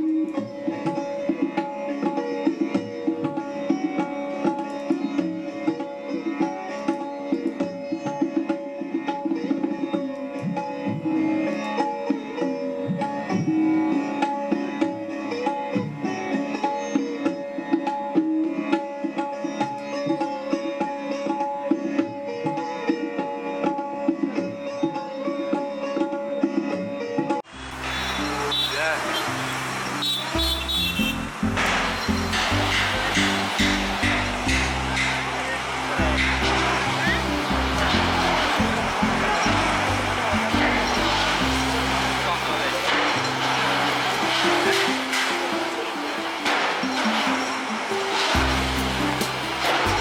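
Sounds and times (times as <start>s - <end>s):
steady drone: 27.5s - 50.0s
hand drum strokes: 27.7s - 50.0s
plucked strings: 27.7s - 50.0s.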